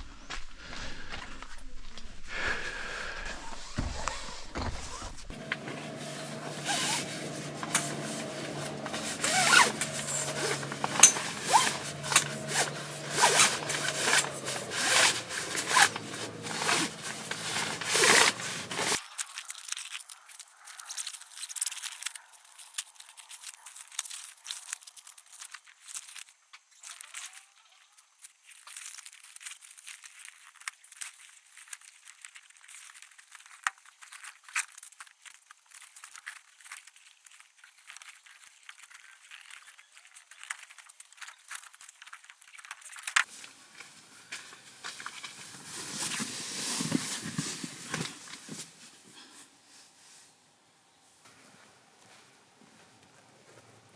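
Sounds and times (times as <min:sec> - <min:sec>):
tent fabric rustling and scraping: 0:03.6 - 0:50.4
zip-like rasps: 0:06.4 - 0:43.3.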